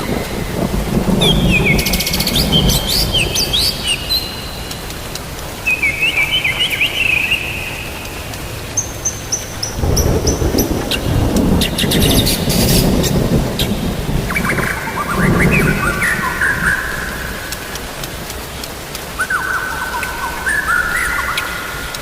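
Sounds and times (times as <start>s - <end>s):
low thunder rumble: 0.0s - 5.1s, 9.5s - 18.2s
birds chirping: 0.0s - 17.9s, 18.9s - 22.0s
steady rain: 0.0s - 22.0s.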